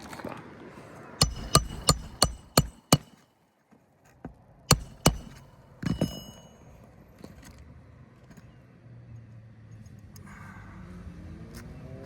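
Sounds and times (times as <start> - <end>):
hammer strikes: 1.2 - 3.2, 4.7 - 6.7
metallic clatter with high ringing: 1.2 - 3.2, 4.7 - 6.8.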